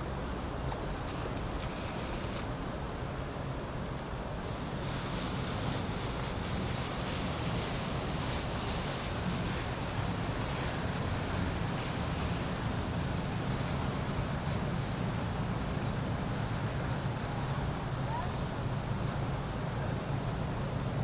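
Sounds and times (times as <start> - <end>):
boat motors rumbling: 0.0 - 21.0
water washing: 4.4 - 21.0.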